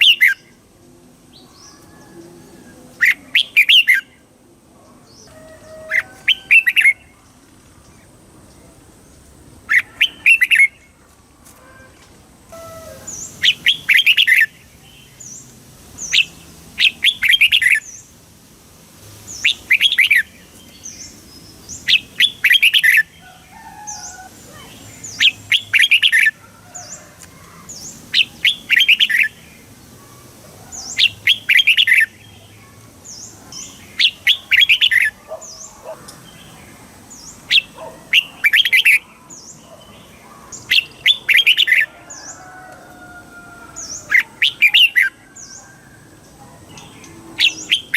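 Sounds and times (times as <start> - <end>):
bird singing chirping phrase: 1.3 - 11.0, 12.5 - 18.0, 46.7 - 47.9.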